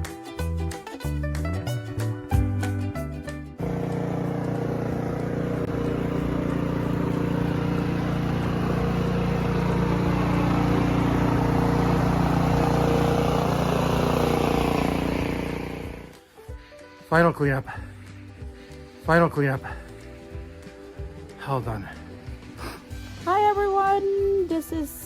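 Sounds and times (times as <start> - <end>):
snowblower engine running: 3.6 - 16.2.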